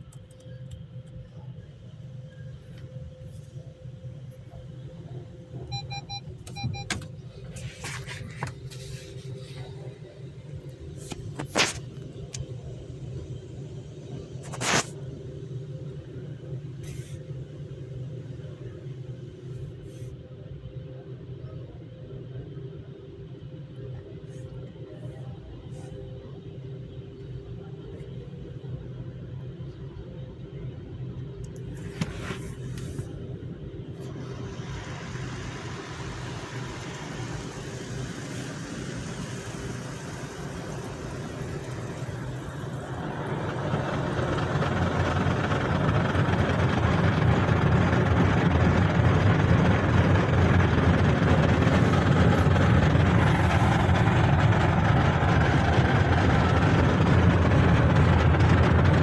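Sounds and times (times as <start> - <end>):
low motor hum: 0.0 - 59.0
motor humming: 34.0 - 59.0.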